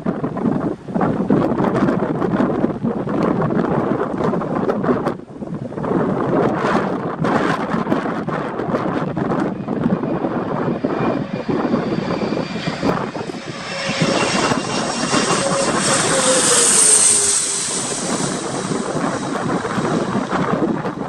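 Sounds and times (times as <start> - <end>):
wind buffeting microphone: 0.0 - 21.0
jet airliner passing by: 7.9 - 21.0.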